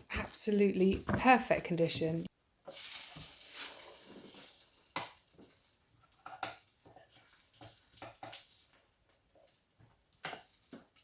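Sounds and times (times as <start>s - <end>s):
faint kitchen clicks and knocks: 0.9s - 2.3s, 4.9s - 11.0s.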